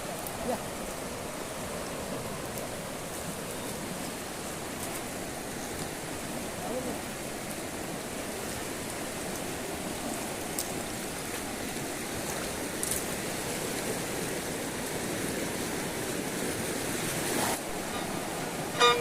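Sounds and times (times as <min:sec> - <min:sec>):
river rushing: 0:00.0 - 0:19.0.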